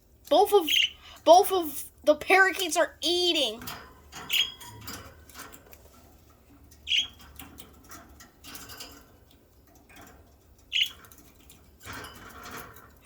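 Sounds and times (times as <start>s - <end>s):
birds scratching and clicking: 3.6s - 13.0s
budgerigar chirps: 6.9s - 7.2s.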